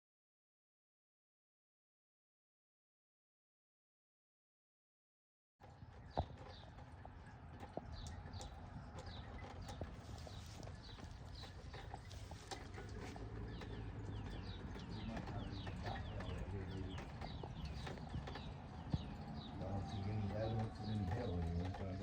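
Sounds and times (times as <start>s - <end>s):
small birds chirping: 5.6s - 22.0s.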